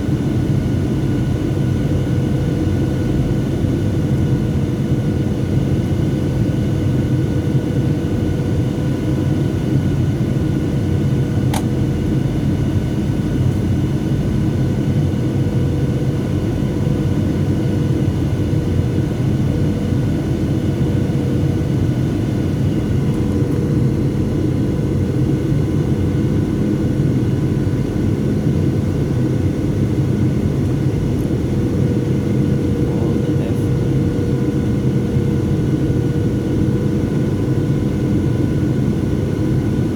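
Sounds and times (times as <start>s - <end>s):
jet engine cabin drone: 0.0s - 39.9s
brief click: 11.5s - 11.7s.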